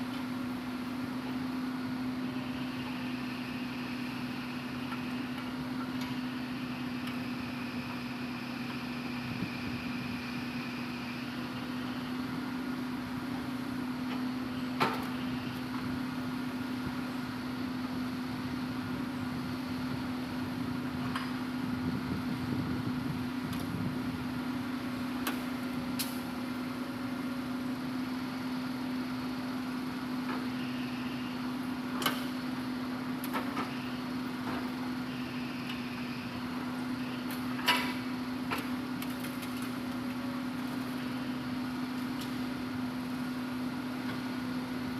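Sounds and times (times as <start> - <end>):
excavator diesel engine hum: 0.0 - 44.9.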